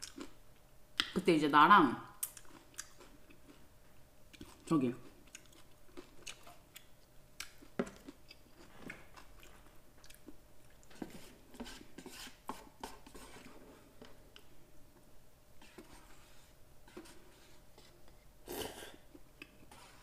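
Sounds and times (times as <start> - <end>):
person chewing noodles: 0.0 - 0.4, 2.2 - 3.7, 4.3 - 11.5.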